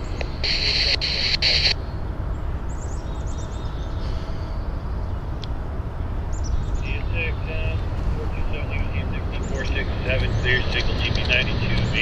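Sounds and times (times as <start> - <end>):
radio static hiss: 0.0 - 1.8, 6.8 - 12.0
birds chirping: 0.0 - 12.0
low rumble: 0.0 - 12.0.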